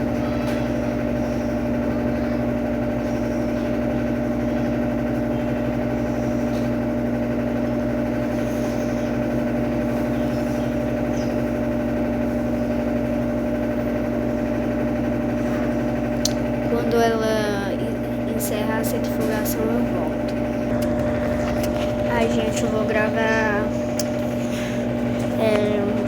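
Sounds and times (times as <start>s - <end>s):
washing machine spinning: 0.0s - 26.0s.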